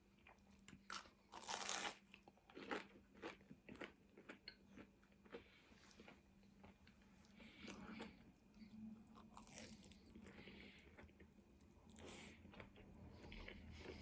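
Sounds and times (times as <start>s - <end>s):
chewing crispy food: 0.1s - 14.0s.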